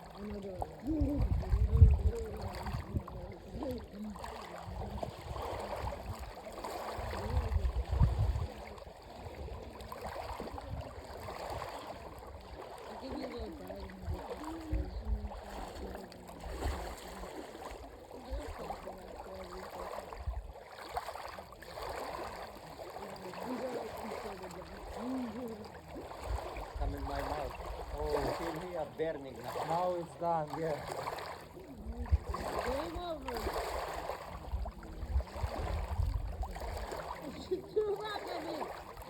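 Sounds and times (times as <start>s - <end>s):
wind buffets on microphone: 0.0s - 12.4s, 13.1s - 17.4s, 26.0s - 28.5s, 31.8s - 38.8s
water sloshing and splashing: 0.0s - 39.0s.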